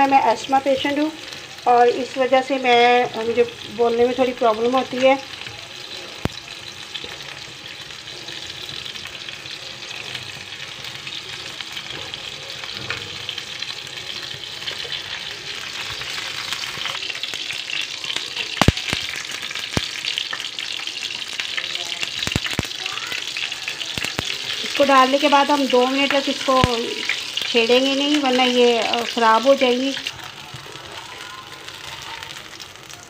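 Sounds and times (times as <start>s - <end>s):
cutlets sizzling on a griddle: 0.0s - 33.0s.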